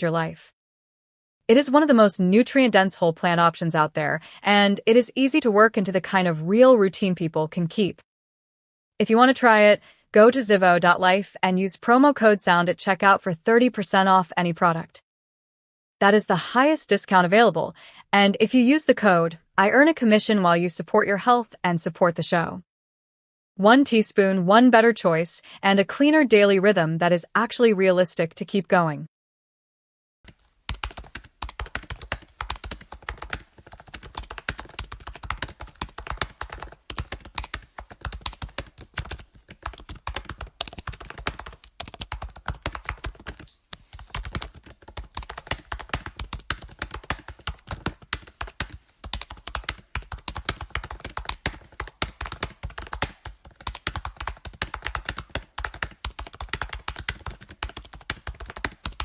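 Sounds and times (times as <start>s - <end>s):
keyboard typing: 30.3s - 59.0s.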